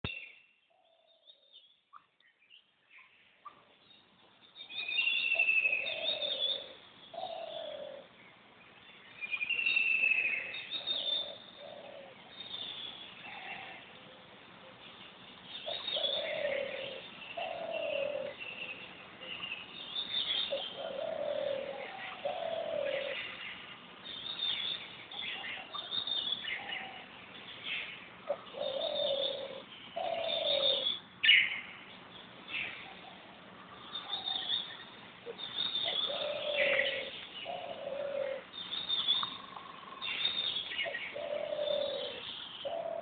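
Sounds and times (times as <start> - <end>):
high bird chirps and trills: 15.4 - 43.0.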